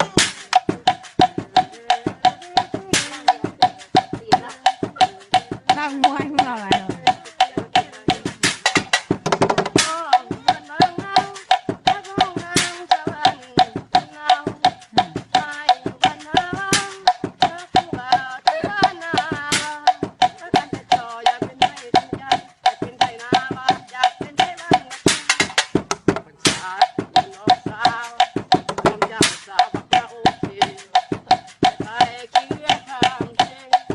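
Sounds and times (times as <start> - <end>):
wavering folk melody: 0.0 - 9.2
tapped percussion: 0.0 - 33.9.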